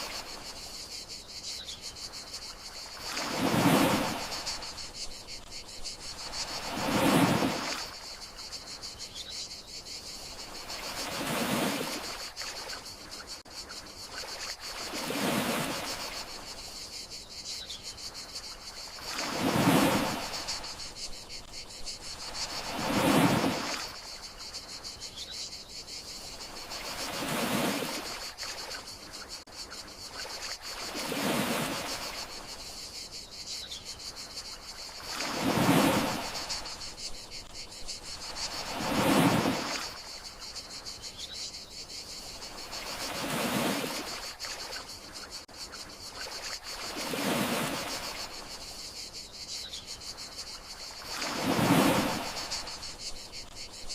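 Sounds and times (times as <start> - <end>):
crickets chirring: 0.0 - 53.9
sea waves washing onto shore: 3.0 - 5.5, 6.2 - 8.0, 19.0 - 21.5, 22.2 - 24.1, 51.0 - 52.9.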